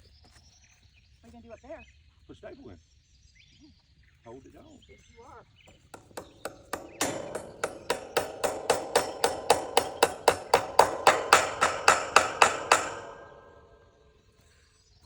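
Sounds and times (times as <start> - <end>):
hammer blows on staple: 5.7 - 14.0.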